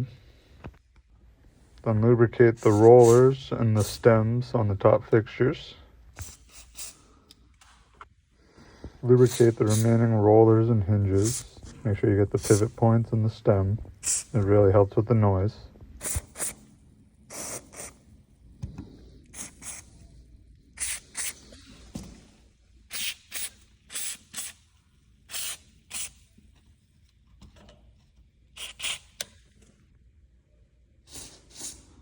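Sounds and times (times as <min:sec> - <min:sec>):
aerosol can hissing in bursts: 0:06.2 - 0:07.0, 0:09.2 - 0:10.0, 0:14.0 - 0:14.3, 0:16.0 - 0:16.7, 0:17.3 - 0:18.1, 0:19.3 - 0:20.0, 0:20.8 - 0:21.8, 0:22.9 - 0:24.7, 0:25.3 - 0:26.3, 0:28.6 - 0:29.2, 0:31.1 - 0:32.0.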